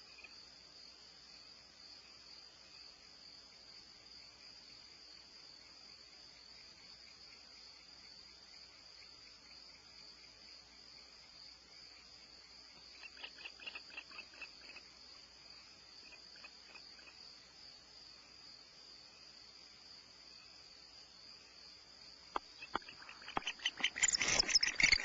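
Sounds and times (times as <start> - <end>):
crickets trilling: 0.0 - 25.0
sharp chirps: 22.6 - 25.0.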